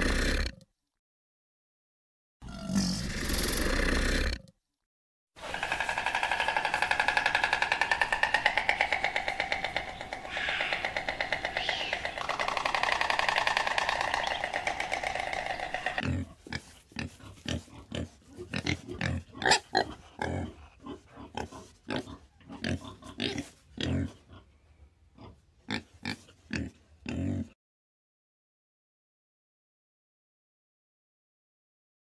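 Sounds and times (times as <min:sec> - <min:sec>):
boars grunting and snorting: 0:00.0 - 0:00.6, 0:02.4 - 0:04.5, 0:05.4 - 0:27.6
rapidly pulsing animal call: 0:05.4 - 0:16.0.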